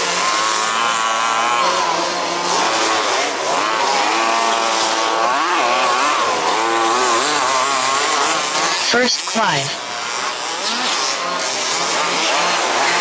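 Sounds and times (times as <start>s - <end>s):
small two-stroke engines revving: 0.0s - 13.0s.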